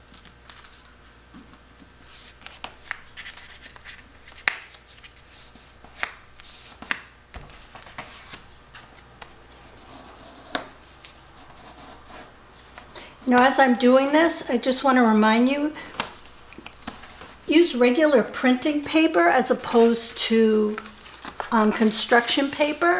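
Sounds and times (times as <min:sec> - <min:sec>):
paper being folded and creased: 0:02.0 - 0:07.0, 0:07.6 - 0:11.7, 0:16.0 - 0:17.5, 0:19.5 - 0:22.9.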